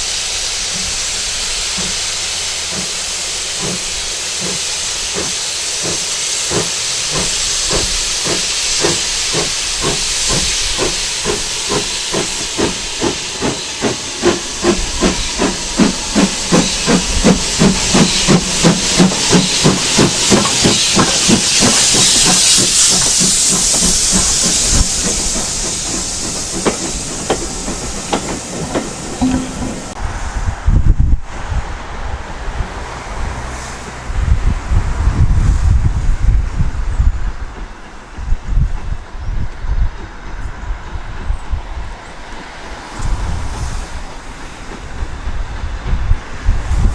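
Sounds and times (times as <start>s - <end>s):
locomotive exhaust chuffs: 0.0s - 30.0s
steam locomotive hissing steam: 0.0s - 46.9s.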